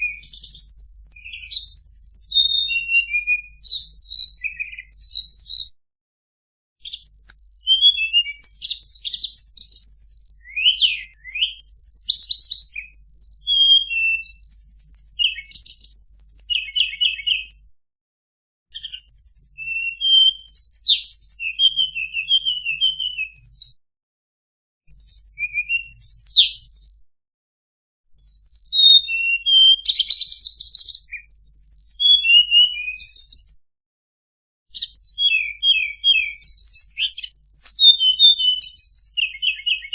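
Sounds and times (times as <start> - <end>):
songbird singing chirps and trills: 0.0 - 5.8, 6.8 - 17.7, 18.7 - 23.8, 24.9 - 27.0, 28.2 - 33.6, 34.7 - 39.9.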